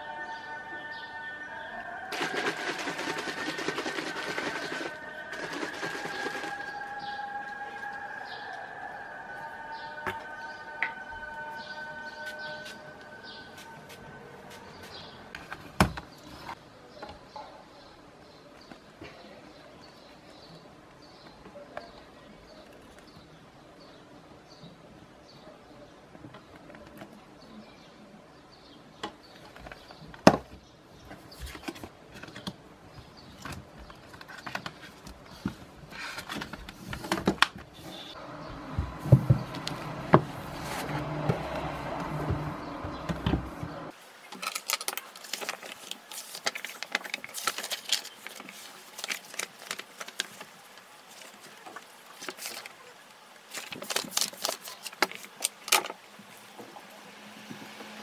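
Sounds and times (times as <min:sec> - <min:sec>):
steady background noise: 0:00.0 - 0:58.0.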